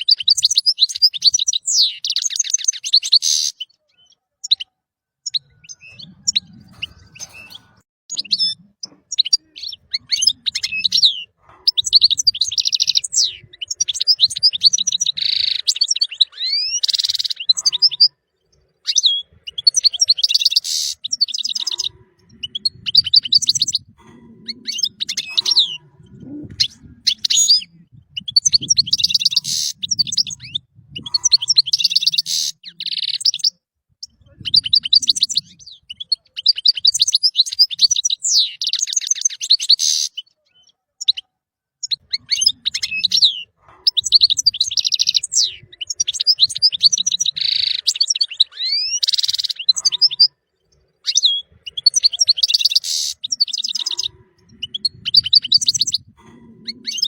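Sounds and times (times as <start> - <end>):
goldfinch twittering song: 0.0 - 25.8, 41.8 - 57.0.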